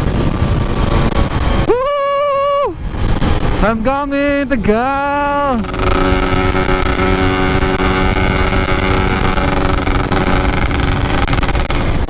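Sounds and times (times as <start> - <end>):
wind rumble on microphone: 0.0 - 12.0
two-stroke motorcycle engine high revs: 5.5 - 12.0.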